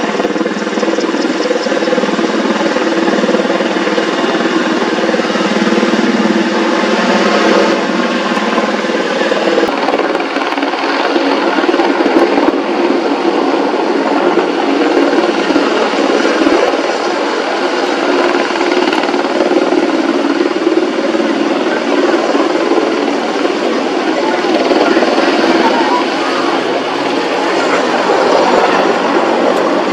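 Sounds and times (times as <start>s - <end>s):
helicopter rotor and turbine: 0.0s - 29.9s.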